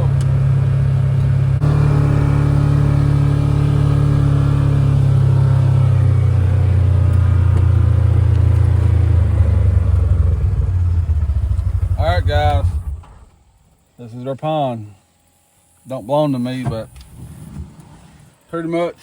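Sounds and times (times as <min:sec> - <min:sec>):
vehicle engine running: 0:00.0 - 0:13.9.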